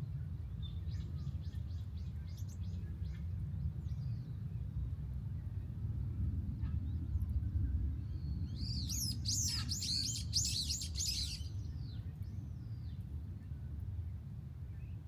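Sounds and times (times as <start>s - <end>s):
songbird chirping: 8.4s - 13.0s.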